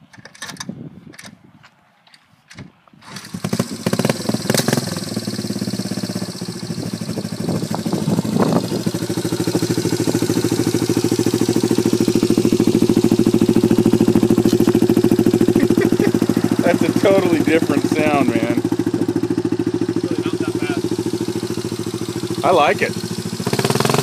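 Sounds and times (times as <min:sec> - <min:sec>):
motorcycle engine idling: 0:03.4 - 0:24.0.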